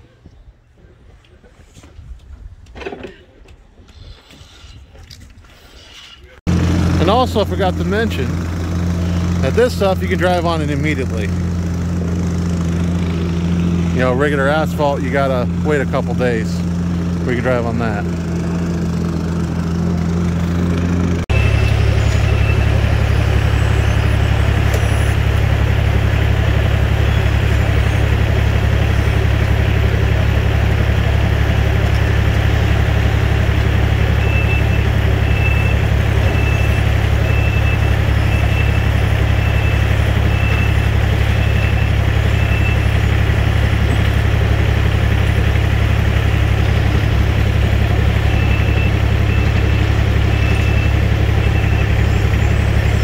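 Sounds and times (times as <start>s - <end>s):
diesel engine running under load: 6.5s - 53.0s
reversing alarm beeping: 21.3s - 30.1s, 33.9s - 44.1s, 48.0s - 53.0s.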